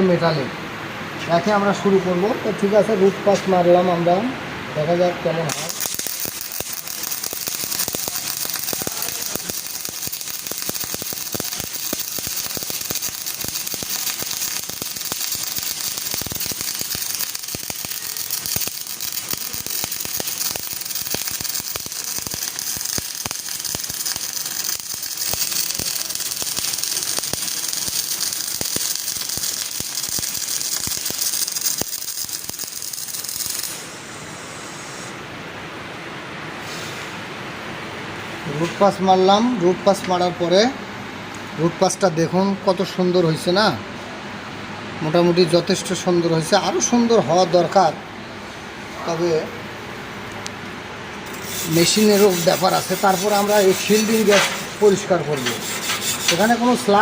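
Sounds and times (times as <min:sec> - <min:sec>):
welding arc crackling: 0:05.3 - 0:35.1, 0:51.2 - 0:57.0.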